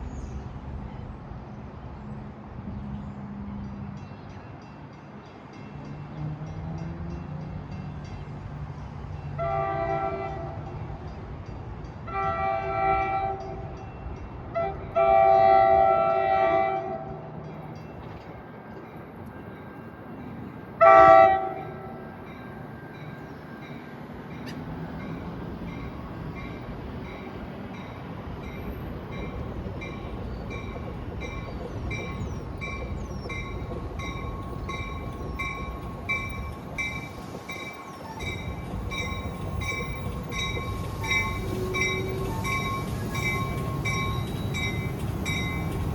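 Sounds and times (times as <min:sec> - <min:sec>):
low train rumble: 0:00.0 - 0:45.9
train horn blasts: 0:09.4 - 0:10.7, 0:12.0 - 0:13.8, 0:14.5 - 0:17.3, 0:20.8 - 0:22.0, 0:41.1 - 0:42.9.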